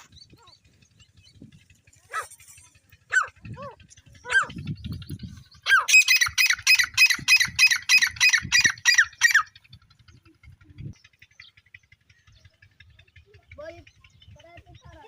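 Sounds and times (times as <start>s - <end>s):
partridge calling: 3.1s - 13.0s.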